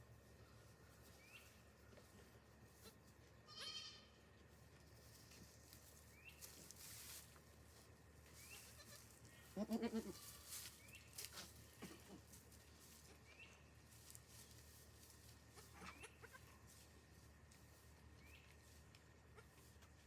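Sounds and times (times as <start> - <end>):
goats bleating: 3.4 - 4.2, 8.6 - 10.6.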